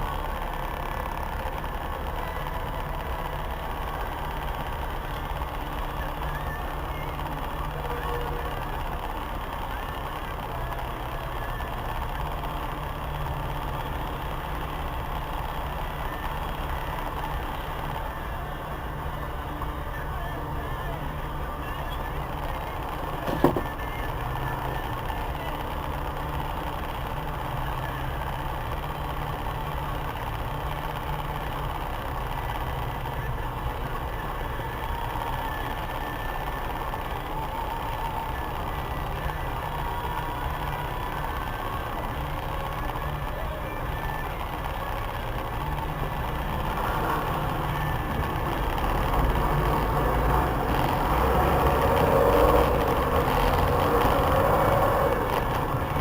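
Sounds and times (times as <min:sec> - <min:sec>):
car engine: 0:00.0 - 0:56.0
city traffic noise: 0:00.0 - 0:56.0.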